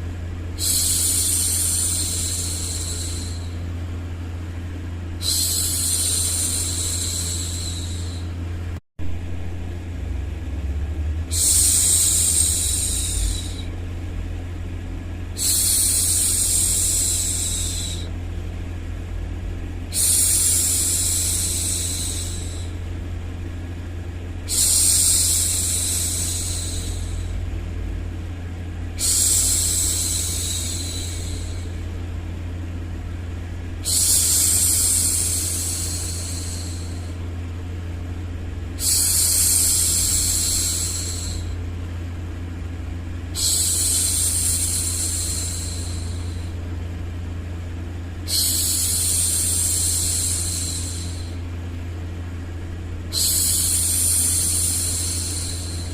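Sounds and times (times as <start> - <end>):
steady low hum: 0.0 - 55.9
woman hushing shhh: 0.6 - 3.8, 5.2 - 8.4, 11.3 - 13.7, 15.4 - 18.1, 19.9 - 22.9, 24.5 - 27.4, 28.9 - 31.9, 33.6 - 37.2, 38.8 - 41.6, 43.3 - 46.8, 48.2 - 51.5, 53.1 - 55.9.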